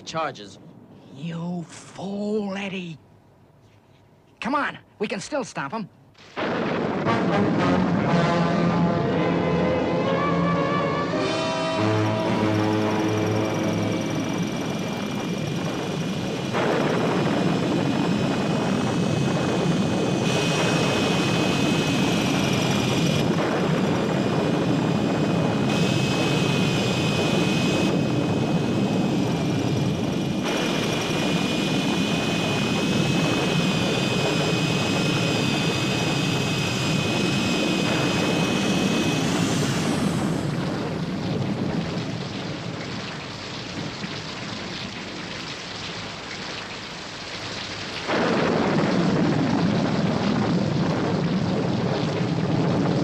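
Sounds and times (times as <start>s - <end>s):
rain and storm noise: 0.0s - 53.0s
high whine: 6.4s - 42.8s.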